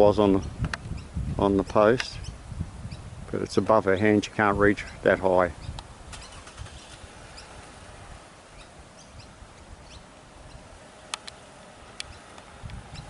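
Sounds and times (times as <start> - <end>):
wind rumble on microphone: 0.0 - 11.0, 11.8 - 13.0
small birds chirping: 0.0 - 13.0
sharp clicks: 11.1 - 11.4.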